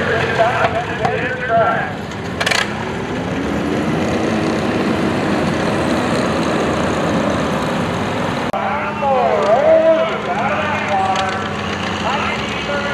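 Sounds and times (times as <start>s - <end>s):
tractor engine revving: 0.0s - 12.9s.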